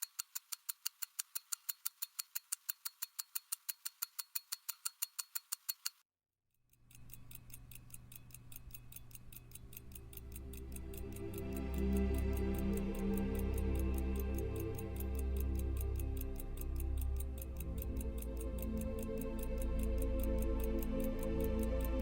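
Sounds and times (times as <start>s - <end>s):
pocket watch ticking: 0.0s - 6.0s, 6.6s - 22.0s
soft music: 9.6s - 22.0s.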